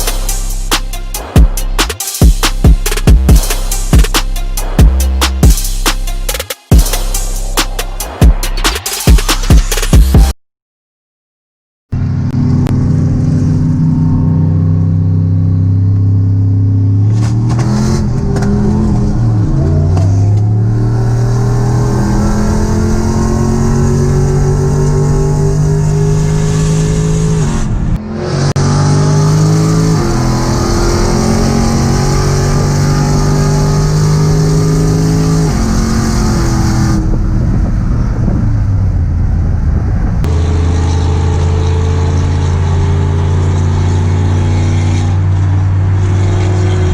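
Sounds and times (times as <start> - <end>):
vehicle engine accelerating: 11.9 - 46.9.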